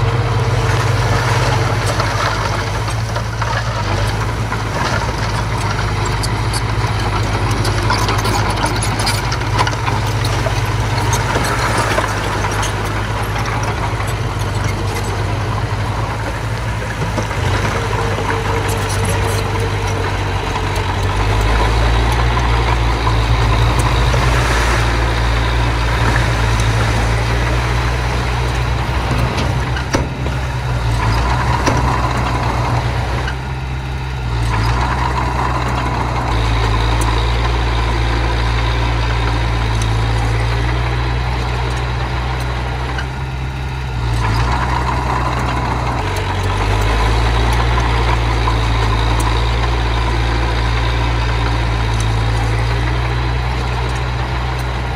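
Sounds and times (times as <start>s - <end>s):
heavy machine engine droning: 0.0s - 54.9s
clicks and knocks: 0.6s - 37.2s.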